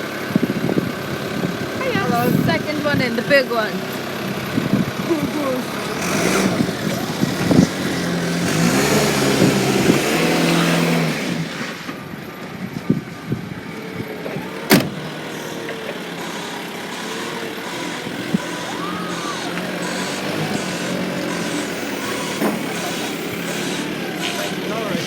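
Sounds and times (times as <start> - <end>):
forklift engine running: 0.0 - 25.0.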